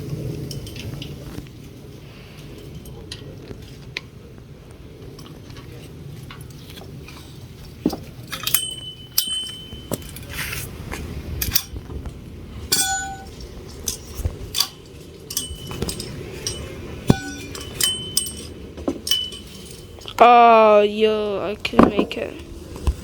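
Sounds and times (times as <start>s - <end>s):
metal parts clinking: 8.2s - 10.4s, 12.7s - 20.1s.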